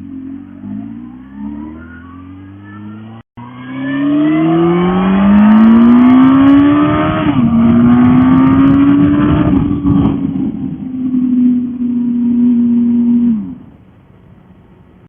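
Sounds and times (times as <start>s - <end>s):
motorcycle engine accelerating: 0.0s - 13.8s.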